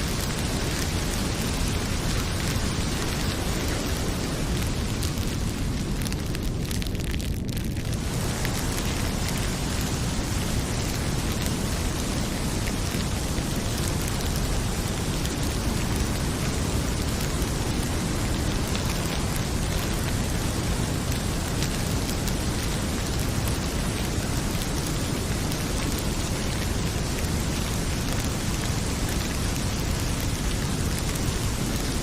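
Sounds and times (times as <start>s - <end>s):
heavy rain pouring: 0.0s - 32.0s
wood fire crackling: 0.0s - 32.0s.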